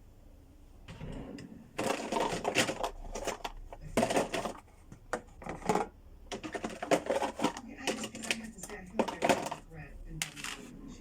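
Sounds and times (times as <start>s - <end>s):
objects clattering and crunching: 0.9s - 10.7s.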